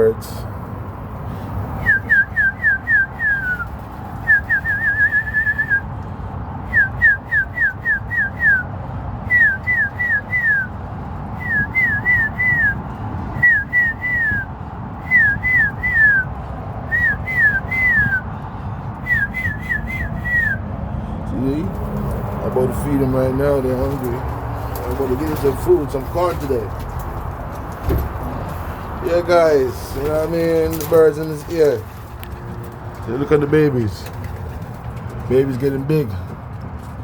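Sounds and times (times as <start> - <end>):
whistled notes sliding down: 19.0 - 20.6.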